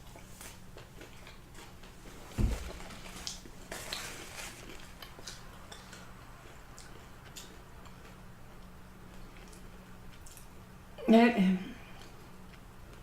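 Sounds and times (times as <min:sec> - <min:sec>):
chewing crunchy fried chicken: 0:00.0 - 0:02.2, 0:02.9 - 0:10.8
dull thump: 0:02.3 - 0:02.8.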